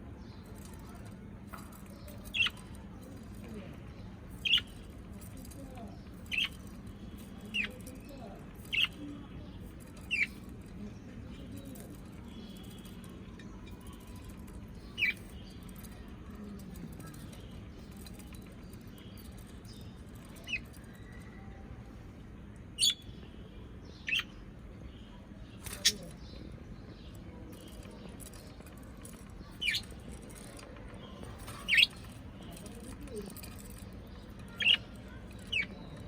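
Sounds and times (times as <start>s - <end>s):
low background murmur: 0.0s - 36.0s.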